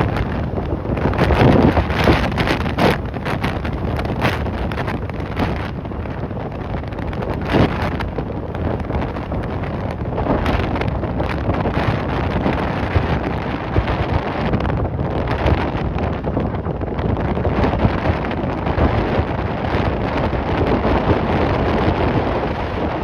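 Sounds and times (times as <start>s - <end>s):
gusty wind buffeting microphone: 0.0s - 23.0s.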